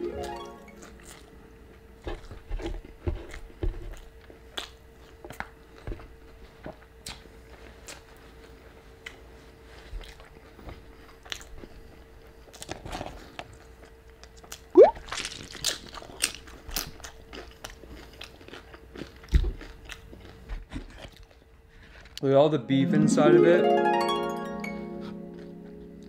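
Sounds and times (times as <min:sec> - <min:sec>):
chewing crunchy food: 0:00.8 - 0:22.2
mouth clicks: 0:14.8 - 0:15.0.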